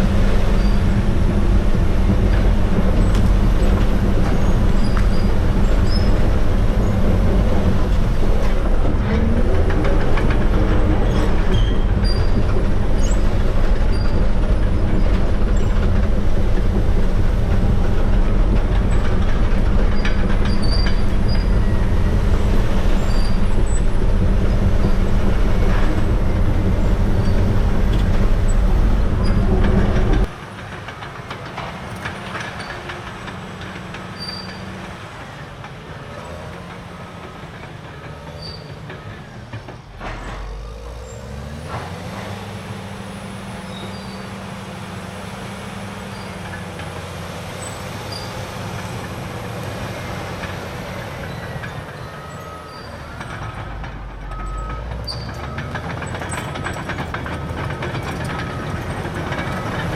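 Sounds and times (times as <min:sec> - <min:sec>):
diesel engine running: 0:00.0 - 0:59.9
steel tracks clanking: 0:00.0 - 0:59.9.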